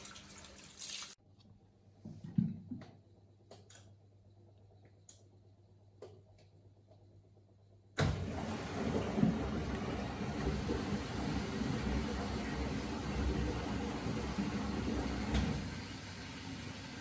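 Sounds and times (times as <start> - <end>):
washing machine low hum: 0.0 - 17.0
washing machine drum turning: 8.0 - 17.0.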